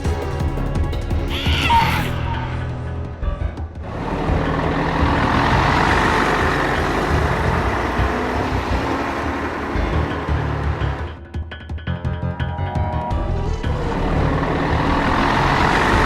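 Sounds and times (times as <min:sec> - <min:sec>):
vehicle engine rumble: 0:02.7 - 0:11.4, 0:12.7 - 0:16.0.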